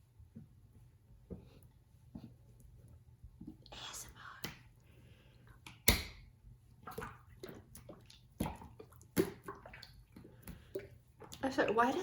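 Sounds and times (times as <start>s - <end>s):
wet slime squelching and popping: 5.6s - 12.0s.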